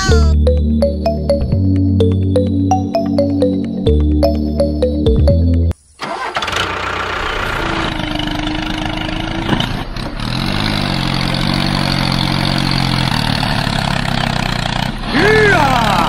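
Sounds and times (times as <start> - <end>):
music: 0.0 - 5.8
tractor engine starting and running: 0.0 - 16.0.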